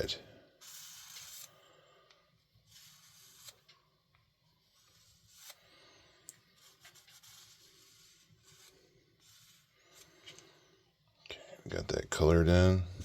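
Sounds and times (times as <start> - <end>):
marker rubbing on steel blade: 0.6 - 1.6, 2.6 - 3.7, 4.6 - 5.6, 6.5 - 10.2.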